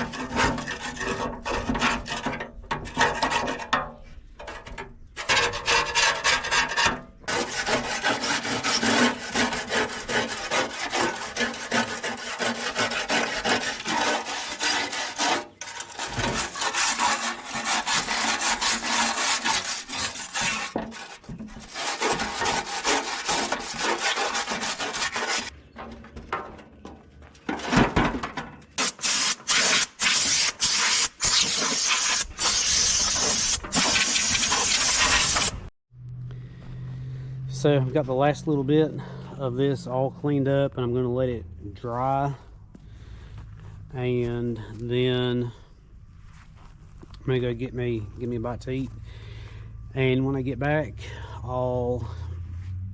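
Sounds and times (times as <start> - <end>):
scrubbing metal part: 5.2 - 25.5, 28.8 - 35.7.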